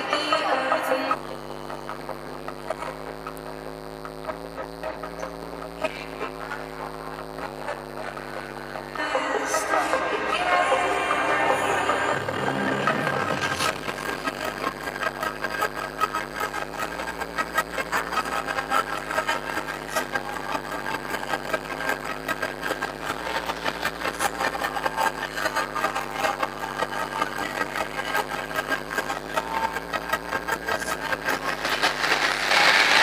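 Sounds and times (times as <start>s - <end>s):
car engine running: 1.2s - 33.0s
crackling and clatter: 26.4s - 33.0s.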